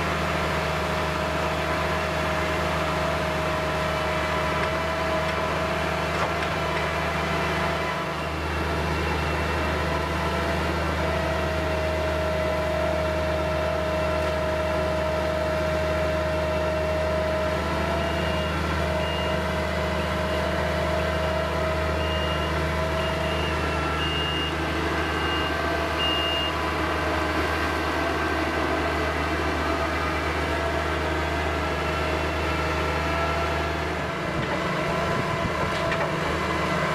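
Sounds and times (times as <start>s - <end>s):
skid-steer engine whining: 0.0s - 36.9s
reversing alarm beeps: 7.3s - 10.8s, 17.9s - 28.6s.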